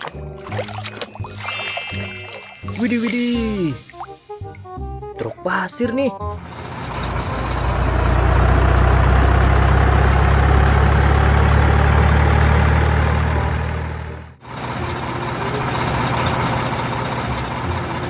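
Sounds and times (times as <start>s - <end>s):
diesel engine droning: 6.2s - 18.0s
quieter engine running: 6.2s - 18.0s.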